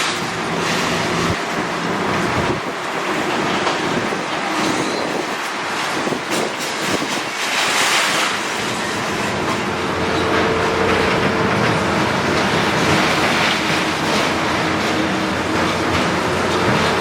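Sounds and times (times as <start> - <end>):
excavator engine running: 0.0 - 17.0
heavy metallic clatter and grinding: 0.0 - 17.0
steady whine: 8.5 - 17.0.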